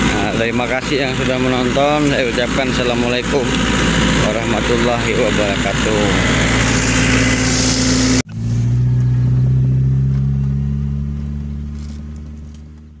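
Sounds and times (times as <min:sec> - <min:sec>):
engine running with hiss: 0:00.0 - 0:09.0
car engine droning inside cabin: 0:00.0 - 0:13.0.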